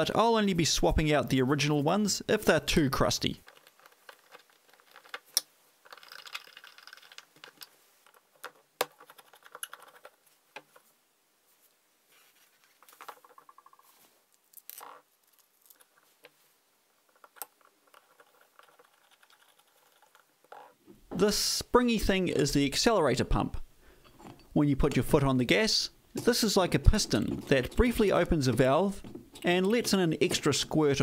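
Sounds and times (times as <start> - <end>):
small metal parts clicking and scraping: 3.4 - 10.8, 12.5 - 16.3, 17.0 - 20.8.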